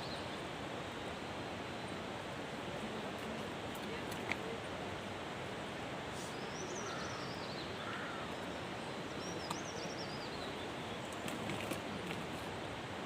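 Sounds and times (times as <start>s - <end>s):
small songbird warbling: 6.4s - 8.3s
mountain water rushing: 7.6s - 13.0s.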